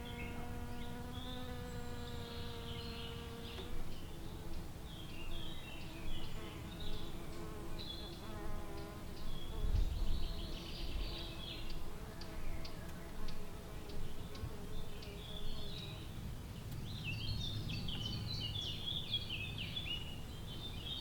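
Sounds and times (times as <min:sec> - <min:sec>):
flying insect buzzing: 0:00.0 - 0:03.8
small birds chirping: 0:00.0 - 0:21.0.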